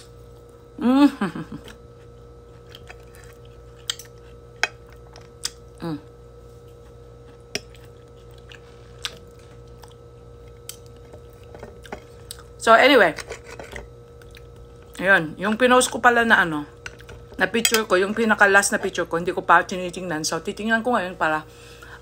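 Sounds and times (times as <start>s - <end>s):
low background hum: 0.0s - 22.0s
person humming briefly: 0.8s - 1.7s, 5.8s - 6.1s
person chewing close up: 1.6s - 5.8s, 6.7s - 12.6s, 14.0s - 15.0s.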